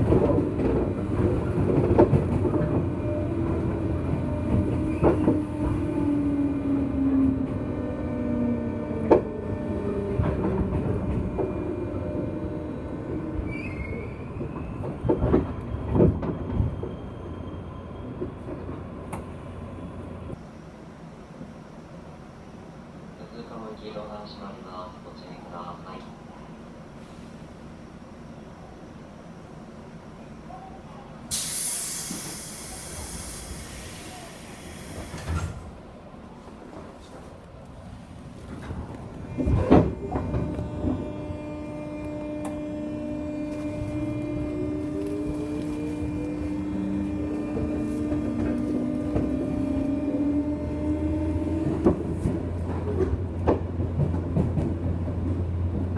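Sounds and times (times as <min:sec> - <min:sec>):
train running noise: 0:00.0 - 0:26.4, 0:31.3 - 0:55.9
train compressed air hissing: 0:31.3 - 0:35.6
electric train motor whine: 0:39.2 - 0:53.1.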